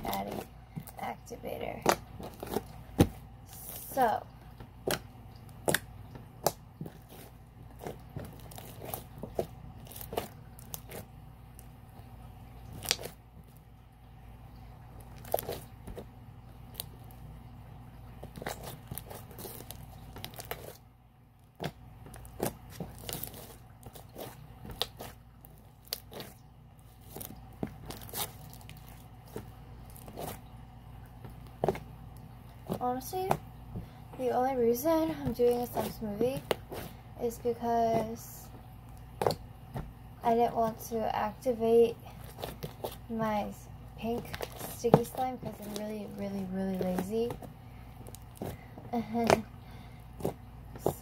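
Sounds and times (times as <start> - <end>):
sticky slime crackling and popping: 0.0 - 11.7, 12.6 - 13.2, 15.0 - 17.2, 18.2 - 20.8, 21.4 - 30.5, 42.2 - 43.4, 44.0 - 49.5.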